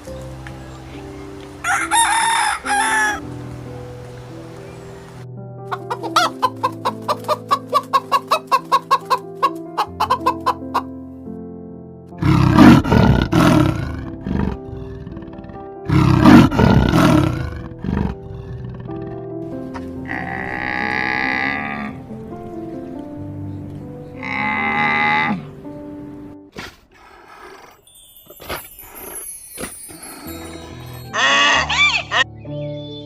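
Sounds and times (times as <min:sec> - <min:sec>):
background music: 0:00.0 - 0:26.7, 0:27.9 - 0:33.0
chicken clucking: 0:05.7 - 0:10.9
loud harsh animal calls: 0:31.1 - 0:32.3.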